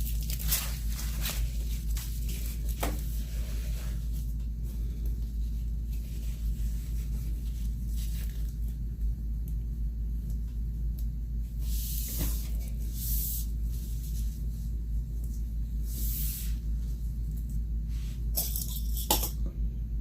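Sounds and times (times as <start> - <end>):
fabric and velcro rustling: 0.0 - 2.8
steady low hum: 0.0 - 20.0.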